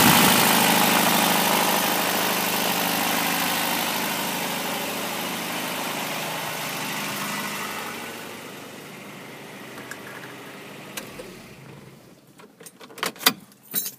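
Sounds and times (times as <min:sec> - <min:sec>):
engine running with rod knock: 0:00.0 - 0:08.4, 0:09.6 - 0:12.0.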